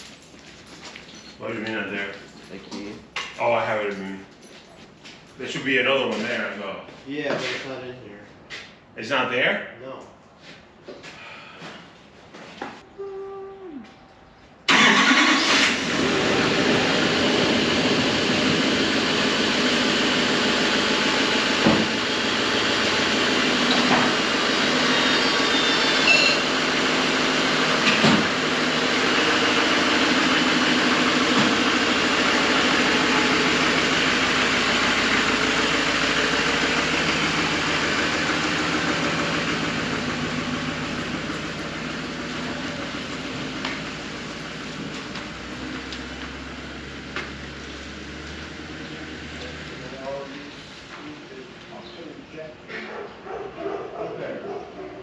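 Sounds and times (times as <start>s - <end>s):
truck engine idling: 14.7s - 52.2s.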